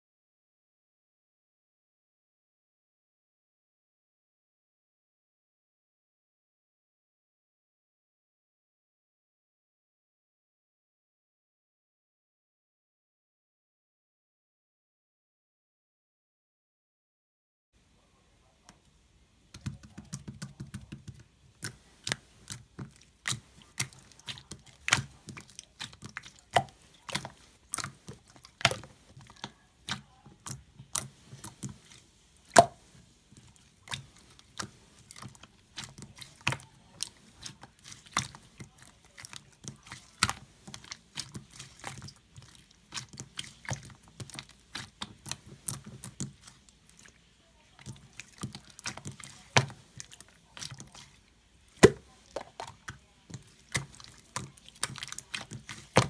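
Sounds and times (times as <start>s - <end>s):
sharp clicks and taps: 19.5s - 23.4s.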